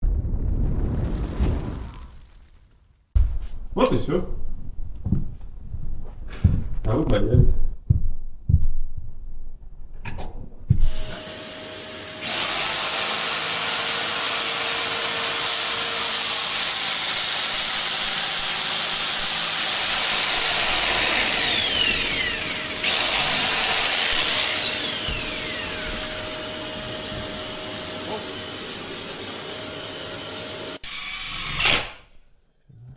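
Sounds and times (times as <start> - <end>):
electric power tool running: 10.9 - 32.0.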